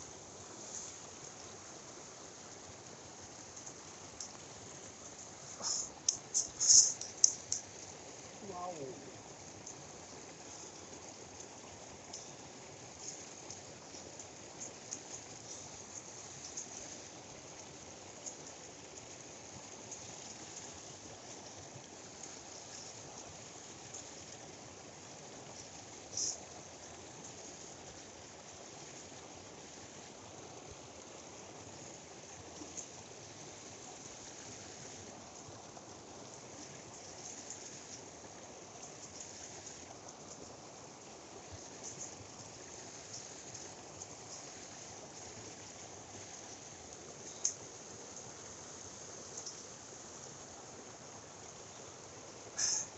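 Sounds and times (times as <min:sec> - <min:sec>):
stream water flowing: 0:00.0 - 0:52.9
faint clicks: 0:05.1 - 0:07.9.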